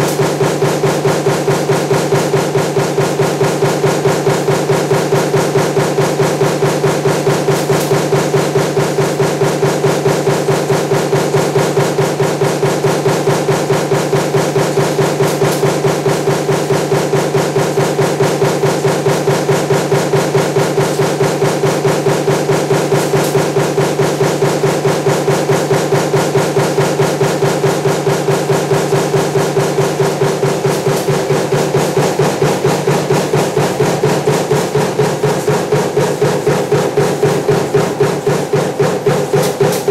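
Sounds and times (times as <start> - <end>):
power press stamping: 0.0 - 39.9
steady machine hum: 0.0 - 39.9.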